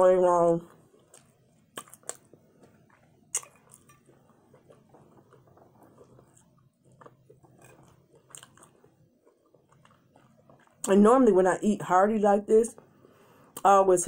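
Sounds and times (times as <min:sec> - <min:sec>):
soft chewing: 0:00.5 - 0:11.0, 0:12.7 - 0:13.7.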